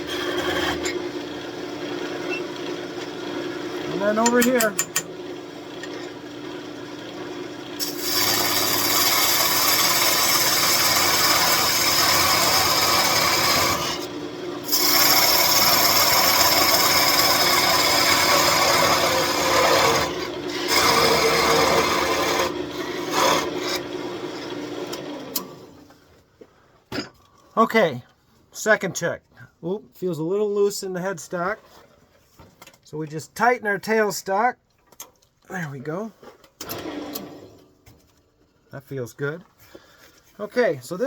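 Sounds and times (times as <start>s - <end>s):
tool scraping wood on lathe: 0.0s - 1.2s, 7.8s - 14.1s, 14.7s - 25.5s
lathe hum: 0.0s - 25.8s.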